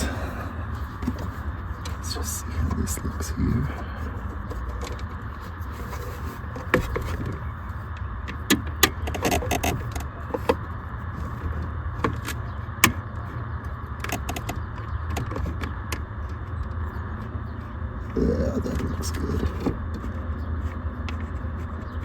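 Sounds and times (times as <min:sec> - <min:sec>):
low background hum: 0:00.0 - 0:22.0
radio bracket clicks and scrapes: 0:00.7 - 0:22.0.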